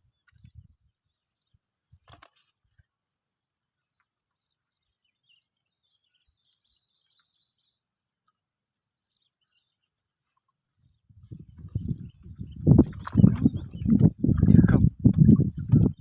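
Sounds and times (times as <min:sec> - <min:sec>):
brief rustle: 0:02.0 - 0:02.7
faint bird chirping: 0:03.8 - 0:08.0, 0:08.8 - 0:14.2.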